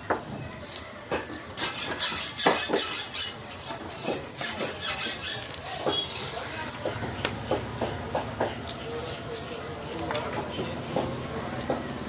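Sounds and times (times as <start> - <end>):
rasping scrapes: 1.6 - 6.1.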